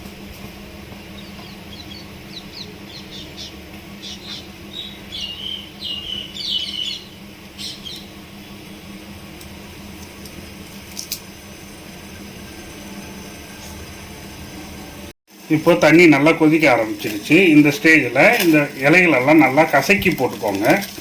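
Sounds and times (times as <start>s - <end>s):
steady low hum: 0.0s - 21.0s
small bird chirping: 1.1s - 8.8s.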